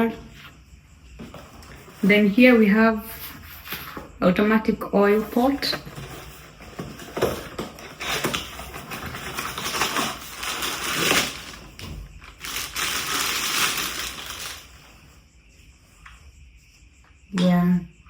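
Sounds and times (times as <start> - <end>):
plastic packaging crinkling: 7.9 - 14.9.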